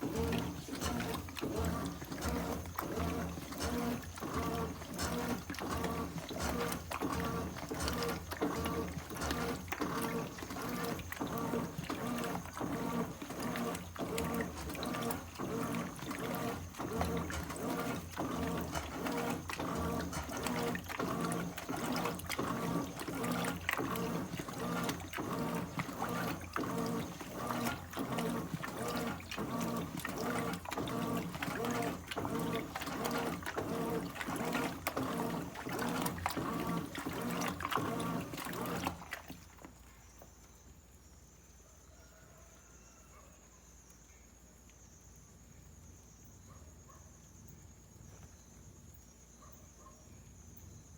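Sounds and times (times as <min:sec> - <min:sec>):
water sloshing: 0:00.0 - 0:40.6
washing machine agitator hum: 0:00.0 - 0:43.3.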